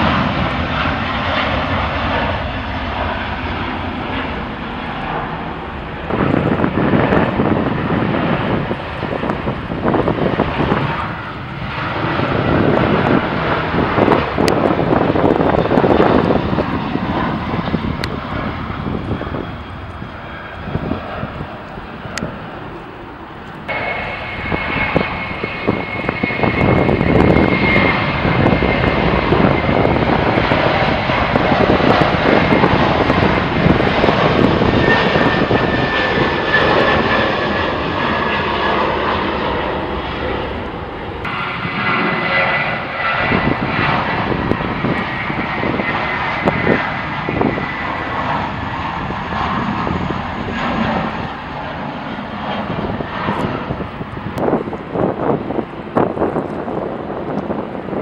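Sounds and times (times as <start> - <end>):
high engine whine: 0.0 - 58.0
jet engines roaring: 0.0 - 58.0.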